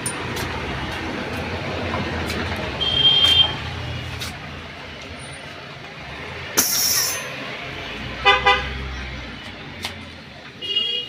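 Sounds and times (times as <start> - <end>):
road traffic rumble: 0.0 - 11.0
vehicle horn toot: 2.8 - 3.6, 8.2 - 8.7, 10.6 - 11.0
air hiss: 6.6 - 7.3.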